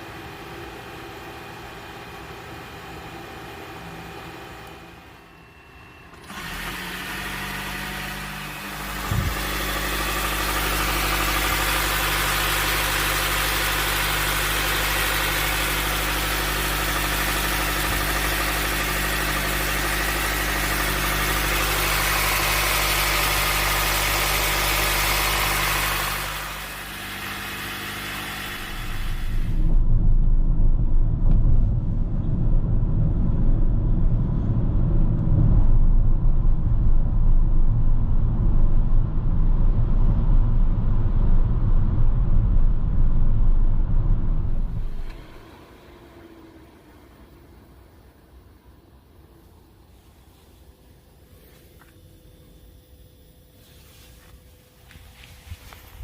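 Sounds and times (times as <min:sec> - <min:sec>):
engine idling hum: 0:00.0 - 0:56.0
loud low rumble: 0:07.9 - 0:13.8, 0:28.4 - 0:45.4.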